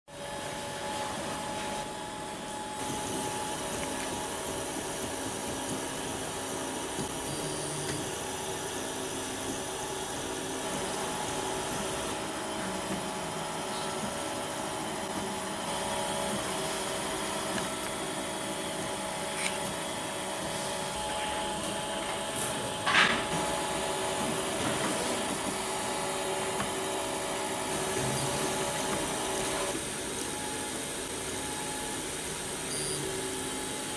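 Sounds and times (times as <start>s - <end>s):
three d printer whine: 0.1s - 33.9s.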